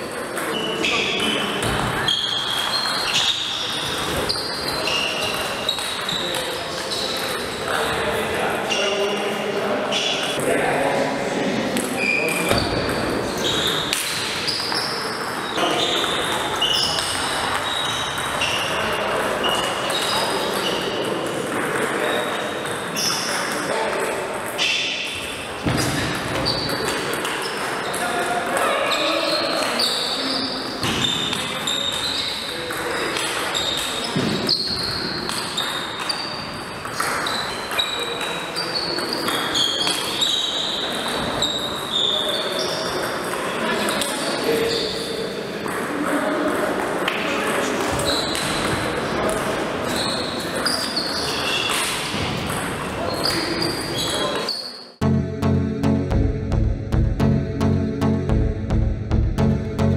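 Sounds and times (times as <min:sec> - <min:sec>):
shoe squeaks: 0:00.5 - 0:01.4, 0:02.0 - 0:07.2, 0:12.0 - 0:12.6, 0:14.5 - 0:18.8, 0:33.5 - 0:36.6, 0:37.2 - 0:43.0, 0:44.6 - 0:45.2, 0:48.0 - 0:48.4, 0:49.9 - 0:51.9, 0:53.1 - 0:54.9
murmur of voices: 0:03.2 - 0:14.5.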